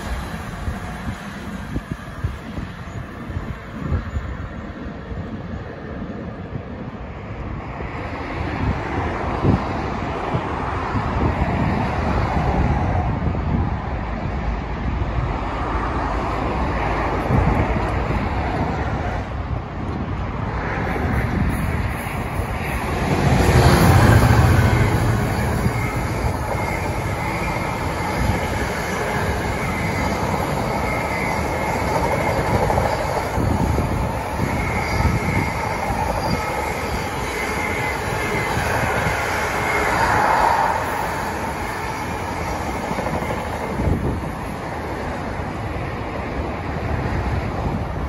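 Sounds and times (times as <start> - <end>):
freight train rumbling: 0.0 - 48.0
high wheel squeal: 21.3 - 44.0.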